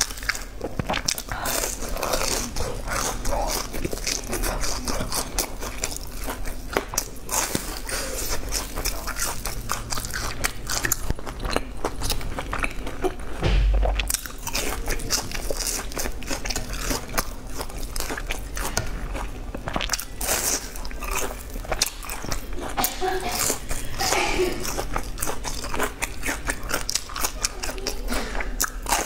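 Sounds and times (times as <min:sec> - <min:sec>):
chewing crispy fried food: 0:00.0 - 0:13.4, 0:14.0 - 0:29.0
low thump: 0:13.4 - 0:14.3.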